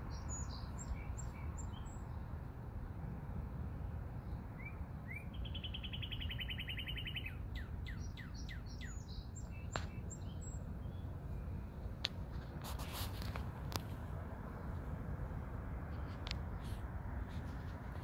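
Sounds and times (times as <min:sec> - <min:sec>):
songbird singing: 0:00.0 - 0:02.6, 0:04.2 - 0:18.0
steady low rumble: 0:09.3 - 0:18.0.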